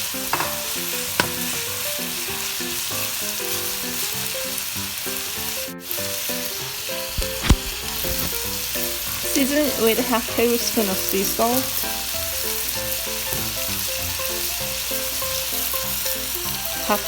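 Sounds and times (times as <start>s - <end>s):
meat sizzling in oil: 0.0s - 17.0s.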